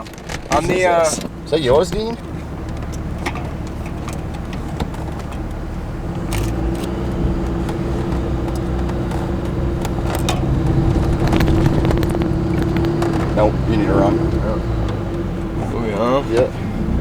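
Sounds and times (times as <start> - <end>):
knocks and rattles: 0.0 - 15.3
diesel truck engine under load: 0.0 - 17.0.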